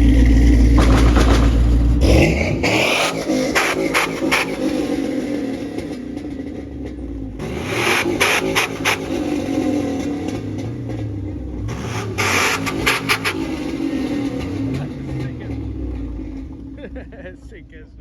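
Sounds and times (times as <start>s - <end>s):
vehicle engine revving: 0.0s - 17.9s
sharp cracks: 0.5s - 6.3s, 11.8s - 14.6s.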